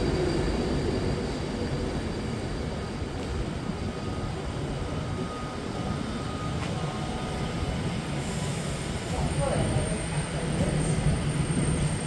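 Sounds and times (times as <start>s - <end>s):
electric train low rumble: 0.0s - 12.0s.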